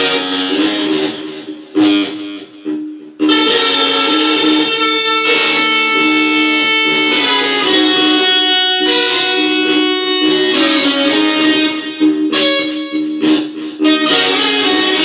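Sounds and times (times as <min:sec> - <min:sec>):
electric guitar playing blues: 0:00.0 - 0:15.0.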